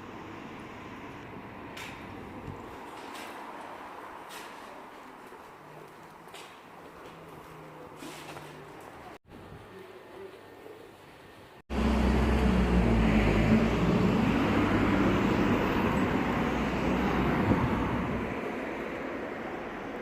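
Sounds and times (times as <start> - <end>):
vehicle engine hum: 0.0 - 9.1, 11.7 - 20.0
road noise: 0.0 - 20.0.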